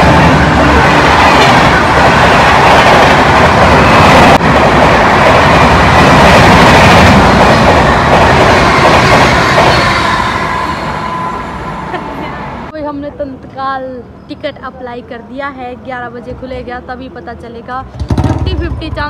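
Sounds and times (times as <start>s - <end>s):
train wheels rushing on rails: 0.0s - 12.7s.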